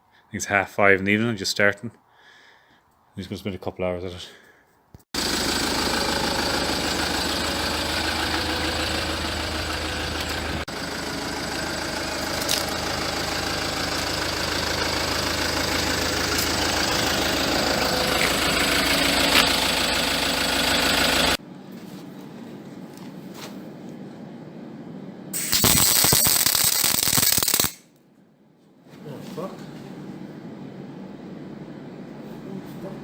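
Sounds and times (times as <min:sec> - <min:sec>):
welder crackling: 0:25.4 - 0:27.8.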